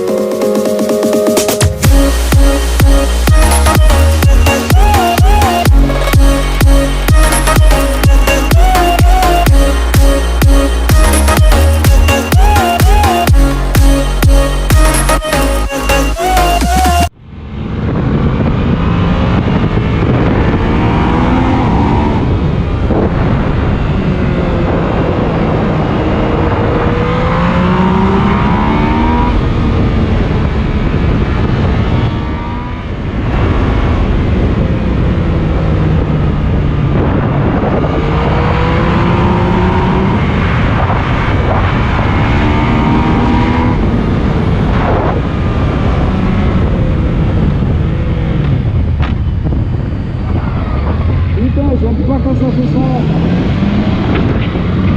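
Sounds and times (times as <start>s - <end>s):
motorcycle engine accelerating: 0.0s - 15.6s, 16.8s - 54.9s
wind rush on microphone: 17.2s - 54.9s.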